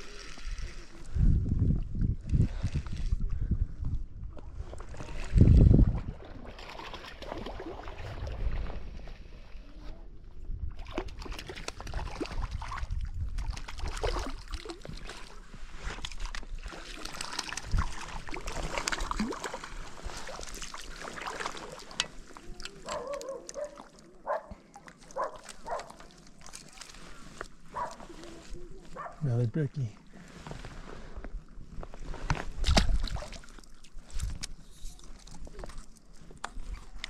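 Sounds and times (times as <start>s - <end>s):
water splashing and sloshing: 0.0s - 37.0s.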